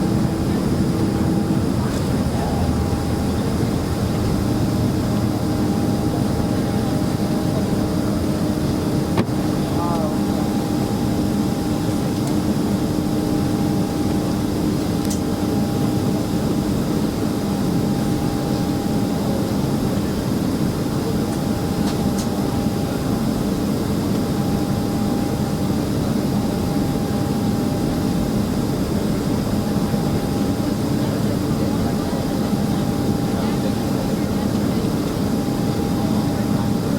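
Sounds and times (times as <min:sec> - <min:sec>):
low hum: 0:00.0 - 0:07.1
jet engines droning: 0:00.0 - 0:36.9.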